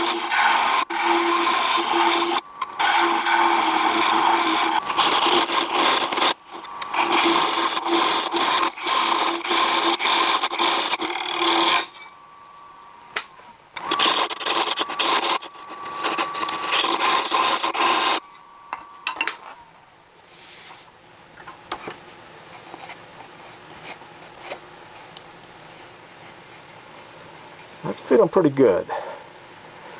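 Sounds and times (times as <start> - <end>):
scraper cutting wood on lathe: 0.0 - 12.0, 13.8 - 18.2
lathe humming: 0.0 - 19.4.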